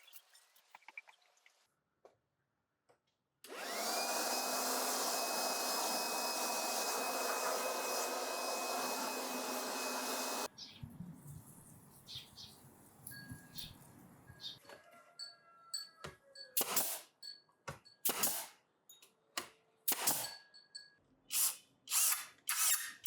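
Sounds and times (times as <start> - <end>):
electric motor whining: 3.5 - 10.5.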